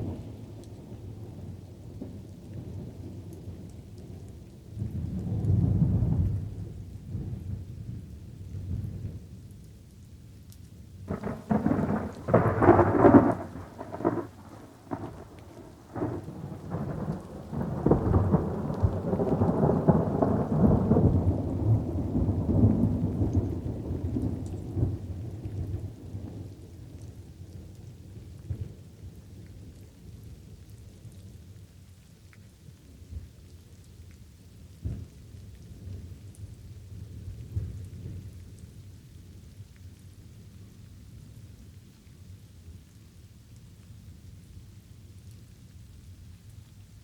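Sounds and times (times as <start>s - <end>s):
steady rain: 0.0s - 47.0s
sharp thunder claps: 11.1s - 24.4s
rolling thunder rumble: 11.1s - 26.6s.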